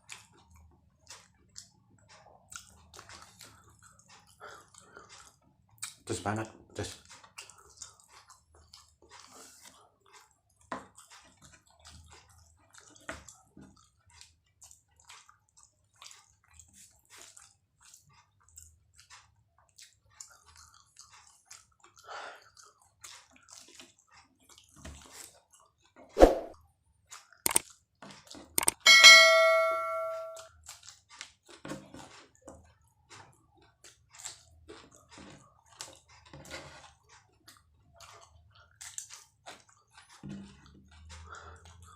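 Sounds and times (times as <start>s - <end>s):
person chewing: 0.1s - 6.0s, 7.1s - 25.6s, 27.2s - 27.7s, 28.6s - 28.8s, 33.8s - 41.9s
dish clinking: 28.8s - 30.4s.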